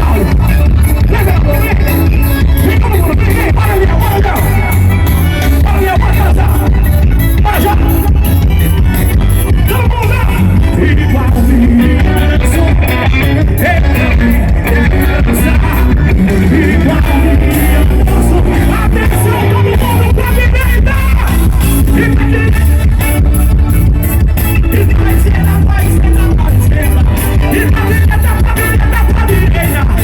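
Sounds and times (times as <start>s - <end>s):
live band music with steady beat: 0.0s - 30.0s
person singing: 9.6s - 23.1s, 24.6s - 30.0s.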